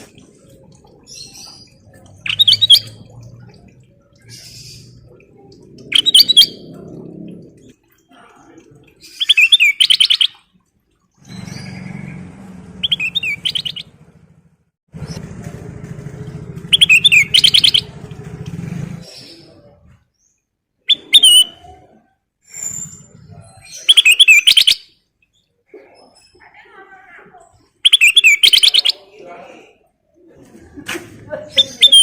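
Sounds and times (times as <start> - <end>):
bulbul chattering song: 0.0 - 8.2, 8.9 - 10.5, 11.2 - 14.2, 16.6 - 18.2, 20.9 - 22.0, 23.6 - 25.0, 27.8 - 29.2, 31.5 - 32.0.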